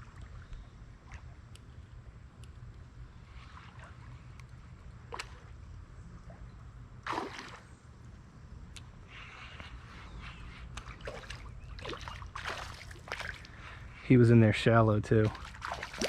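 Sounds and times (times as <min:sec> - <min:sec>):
steady low rumble: 0:00.0 - 0:16.0
water splashing in a creek: 0:07.0 - 0:07.7, 0:10.8 - 0:13.8, 0:15.1 - 0:16.0.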